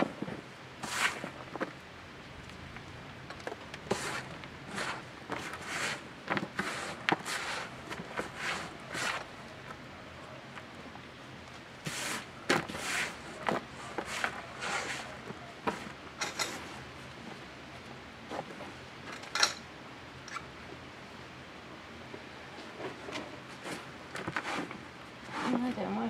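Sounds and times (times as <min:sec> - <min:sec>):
hands scraping through soil: 0:00.8 - 0:01.6, 0:03.8 - 0:09.4, 0:11.8 - 0:15.2, 0:23.6 - 0:25.8.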